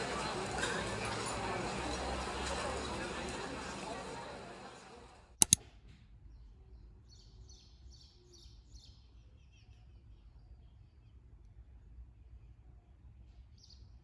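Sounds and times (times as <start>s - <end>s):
background hubbub: 0.0s - 5.4s
sharp clicks: 5.4s - 5.6s.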